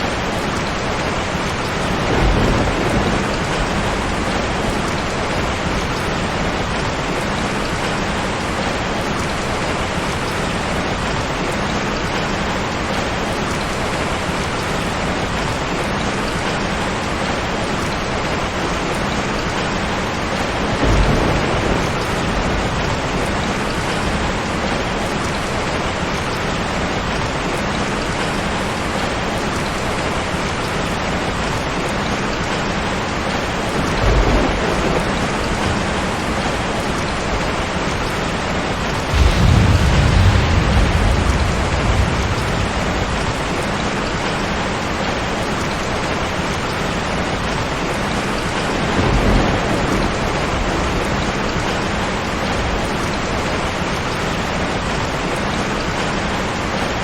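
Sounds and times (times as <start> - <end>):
low rumble of thunder: 0.0 - 11.5, 17.8 - 27.7, 33.2 - 55.3
heavy rain: 0.0 - 57.0.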